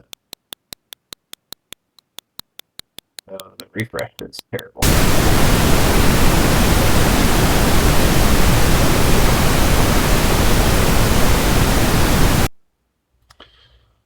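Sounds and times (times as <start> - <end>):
white noise hiss: 4.8 - 12.6.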